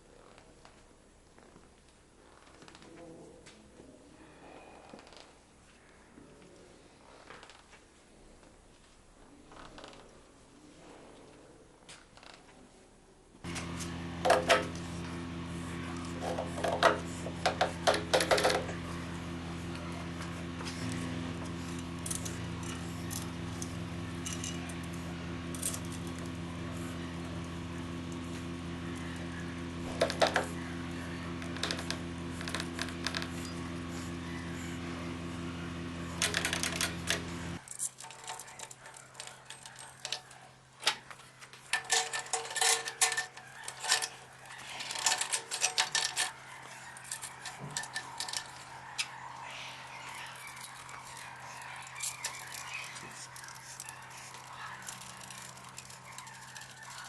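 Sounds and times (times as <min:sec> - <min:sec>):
machine hum: 0:13.4 - 0:40.2, 0:41.7 - 0:57.0
metal parts and tools clinking: 0:21.7 - 0:26.1, 0:41.7 - 0:49.1, 0:50.1 - 0:57.0.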